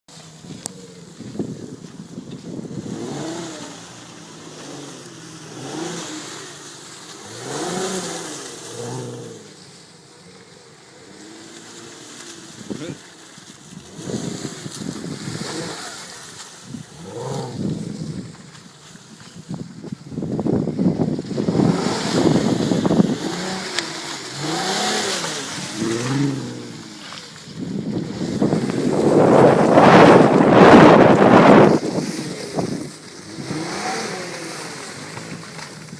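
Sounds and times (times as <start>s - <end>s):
car engine revving: 2.3s - 19.1s, 20.4s - 35.9s
rushing noise: 21.2s - 35.9s.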